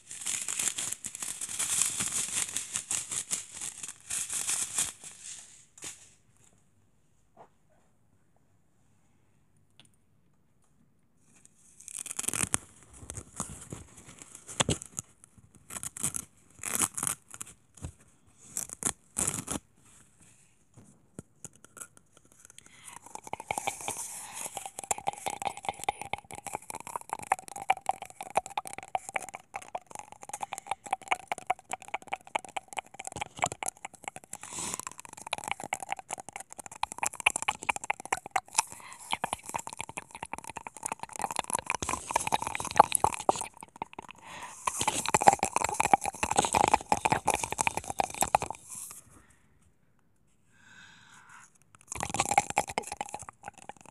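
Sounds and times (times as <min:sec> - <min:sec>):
rapid crackle: 0:00.0 - 0:05.2, 0:22.9 - 0:49.0
crinkling or tearing: 0:00.0 - 0:06.0, 0:11.8 - 0:19.6.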